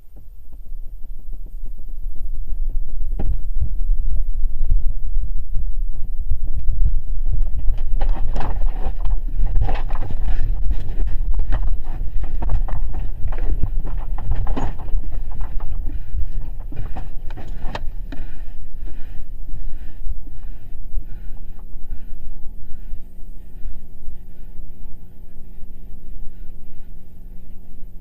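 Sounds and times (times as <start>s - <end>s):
deep earthquake rumble: 0.0s - 28.0s
loose objects knocking and rattling: 7.4s - 18.2s.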